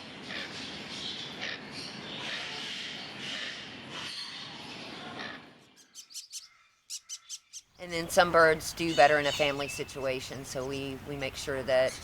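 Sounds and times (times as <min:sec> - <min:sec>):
parrots chattering and squawking: 0:00.2 - 0:07.7.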